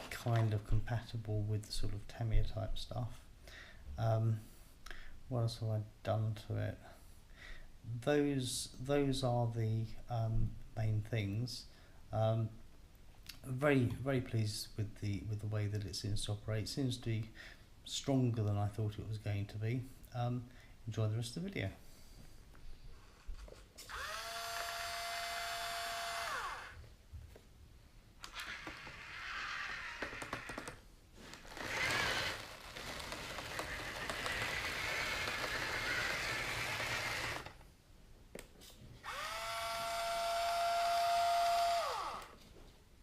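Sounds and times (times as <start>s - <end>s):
small electric motors whining: 23.9s - 26.8s, 28.2s - 37.6s, 39.0s - 42.4s.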